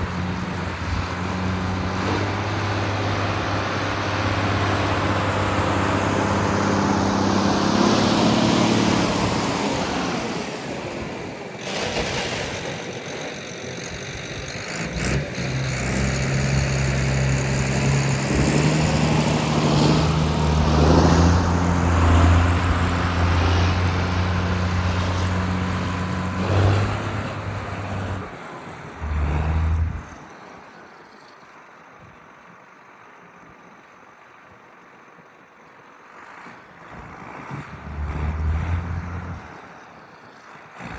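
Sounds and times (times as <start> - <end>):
tractor diesel engine running: 0.0 - 30.2, 36.7 - 40.9.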